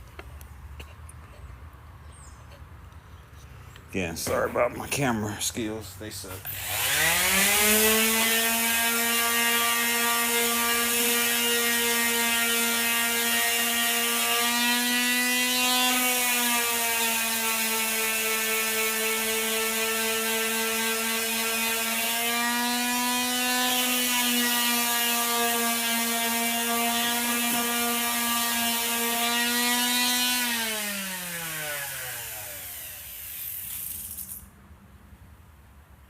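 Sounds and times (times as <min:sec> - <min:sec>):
electric sander motor: 0:06.5 - 0:34.4.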